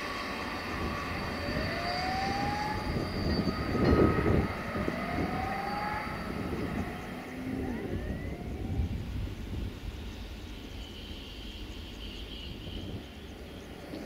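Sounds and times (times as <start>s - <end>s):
rising whine: 0.0s - 10.8s
train rolling rumble: 0.0s - 14.0s.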